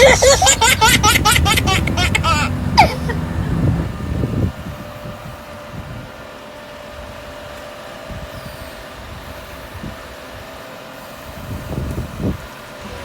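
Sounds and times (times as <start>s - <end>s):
machine engine humming: 0.0s - 6.6s
engine whine: 0.0s - 7.9s.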